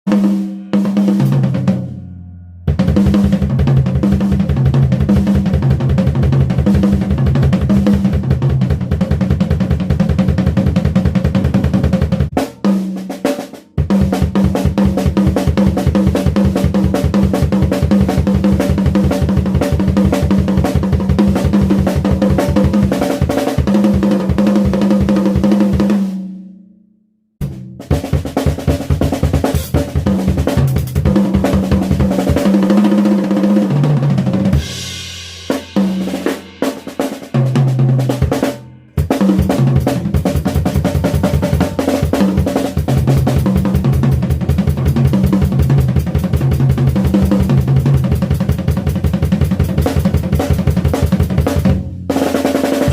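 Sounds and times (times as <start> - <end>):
drum kit rolls and fills: 0.0 - 26.5, 27.4 - 52.9.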